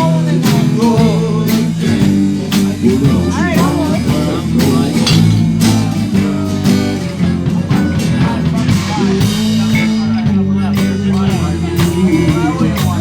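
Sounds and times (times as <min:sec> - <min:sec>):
electric guitar: 0:00.0 - 0:13.0
live blues band: 0:00.0 - 0:13.0.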